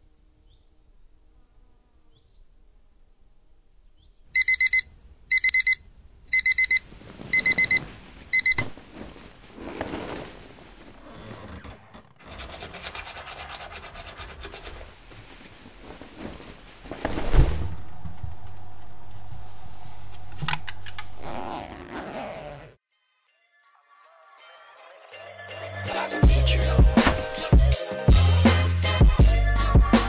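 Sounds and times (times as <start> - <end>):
alarm beeping: 4.4 - 6.8, 7.4 - 7.8, 8.4 - 8.6
bedding rustling: 6.8 - 12.1, 14.6 - 22.7, 26.9 - 27.6.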